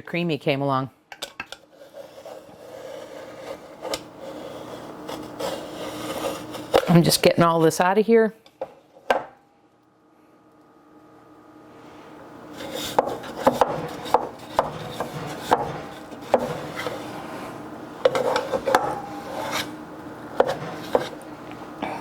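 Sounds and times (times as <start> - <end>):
steady hum: 0.0 - 22.0
spoon scraping ice cream: 1.6 - 7.8, 12.5 - 17.3, 18.1 - 19.8, 20.4 - 21.2.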